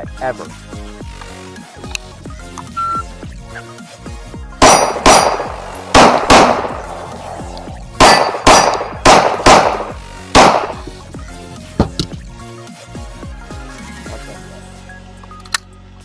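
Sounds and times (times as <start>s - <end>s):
faint gunshot report: 4.6s - 7.2s, 8.0s - 10.8s
pistol shots with metallic ring: 4.6s - 10.9s.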